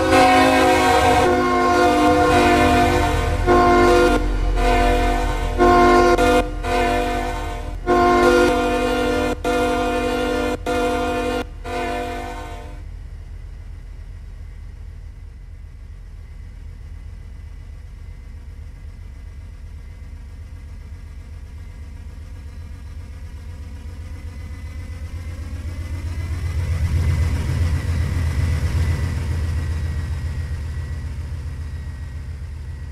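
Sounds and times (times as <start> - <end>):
diesel locomotive engine rumble: 0.0 - 32.9.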